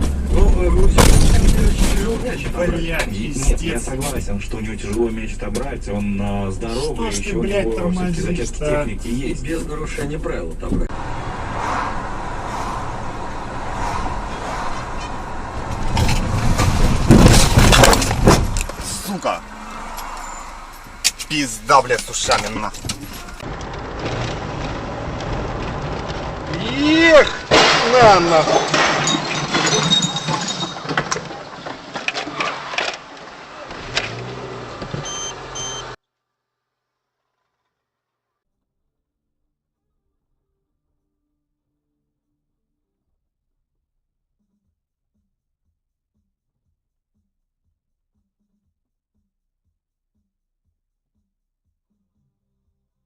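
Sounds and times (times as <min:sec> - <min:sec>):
car engine and road noise: 0:00.0 - 0:36.0
rough rushing noise: 0:10.9 - 0:28.8
knocks and clinks: 0:27.5 - 0:31.7.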